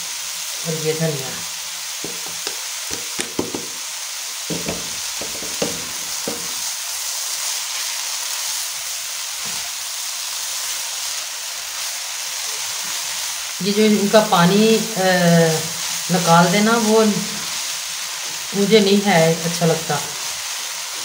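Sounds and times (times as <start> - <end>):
radish sizzling in a pan: 0.0 - 21.0
spatula scraping and knocking: 2.0 - 3.8, 4.5 - 6.6.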